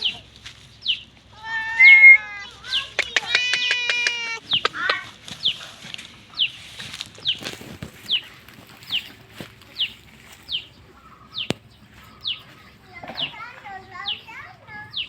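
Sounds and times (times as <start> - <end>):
young animal peeping: 0.0 - 15.0
sharp click: 3.0 - 4.9.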